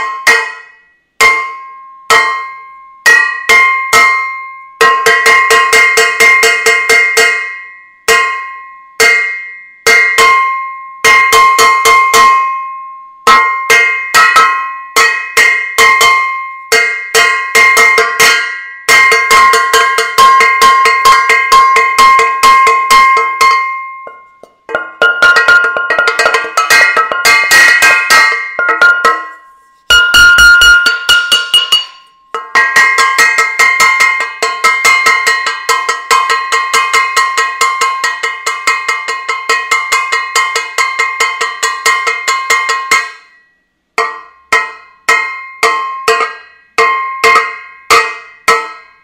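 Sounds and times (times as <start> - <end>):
metal saucepan being banged: 0.0 - 2.5, 13.3 - 43.3, 44.0 - 49.0.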